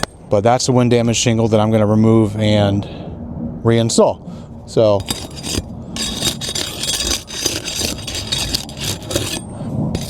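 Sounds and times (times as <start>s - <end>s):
roof shingles crackling and scraping: 5.0s - 9.4s.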